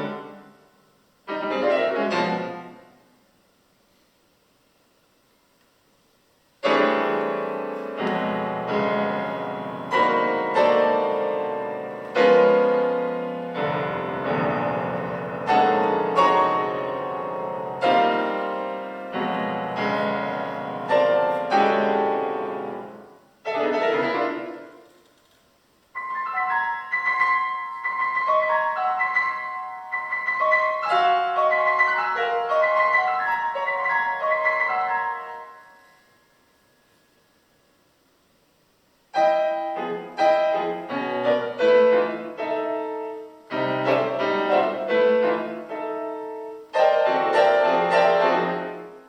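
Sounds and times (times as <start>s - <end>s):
piano chords: 0.0s - 3.1s, 6.6s - 24.9s, 25.9s - 37.4s, 39.1s - 49.0s.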